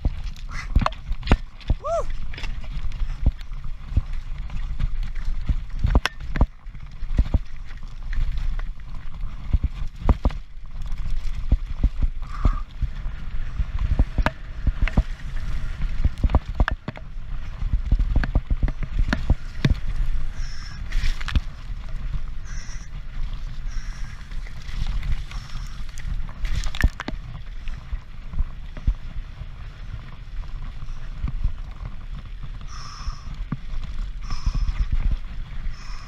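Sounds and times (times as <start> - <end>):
bike knocks and rattles: 0.0 - 12.6, 13.8 - 19.9
mountain bike rumbling downhill: 0.0 - 36.0.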